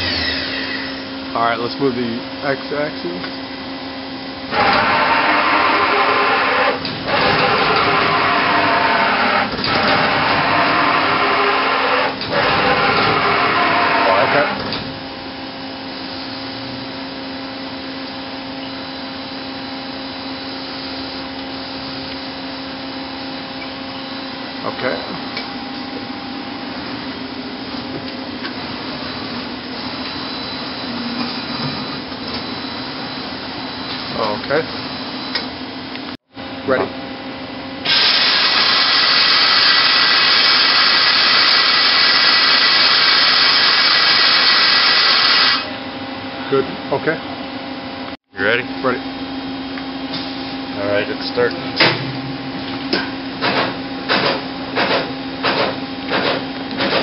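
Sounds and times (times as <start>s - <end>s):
machining center whirring: 0.0s - 57.0s
machining center hissing: 4.6s - 14.6s, 37.9s - 45.7s.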